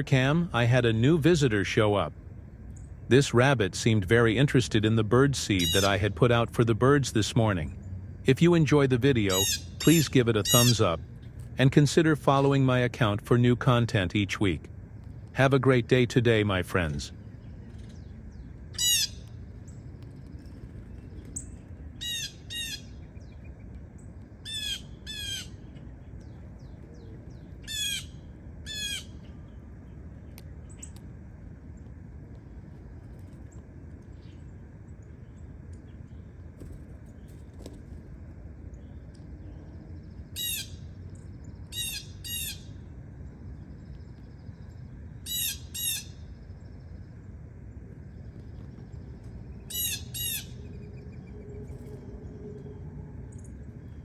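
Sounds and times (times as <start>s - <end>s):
low background noise: 0.0s - 54.0s
bird squawking: 5.5s - 6.2s, 9.2s - 11.0s, 18.8s - 19.2s, 22.0s - 23.0s, 24.4s - 25.7s, 27.6s - 29.2s, 40.4s - 40.8s, 41.7s - 42.7s, 45.2s - 46.2s, 49.6s - 50.8s.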